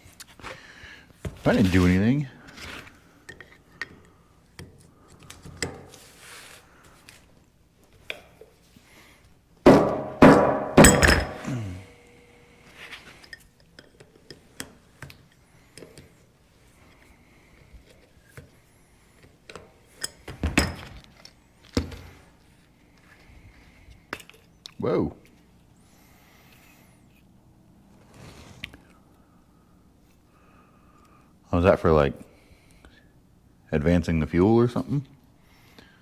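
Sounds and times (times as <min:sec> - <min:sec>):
metal parts clinking and knocking: 0:09.7 - 0:11.5.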